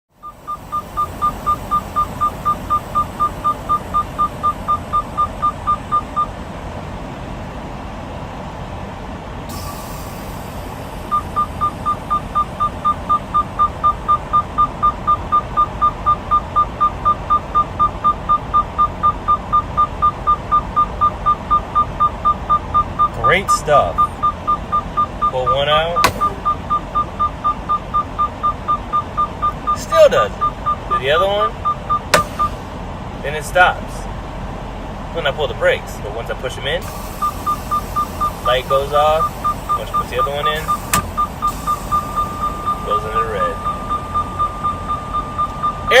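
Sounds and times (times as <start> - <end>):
diesel engine idling: 0.1 - 46.0
short hiss of air: 9.5 - 10.9
warning buzzer beeping rapidly: 25.2 - 26.7, 37.2 - 46.0.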